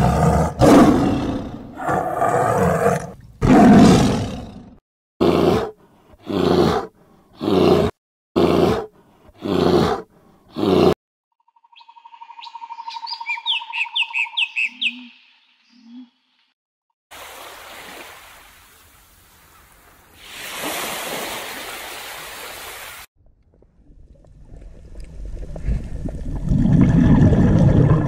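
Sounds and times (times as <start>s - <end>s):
large animal roaring: 0.0s - 11.0s
songbird trilling and chirping: 11.5s - 16.1s.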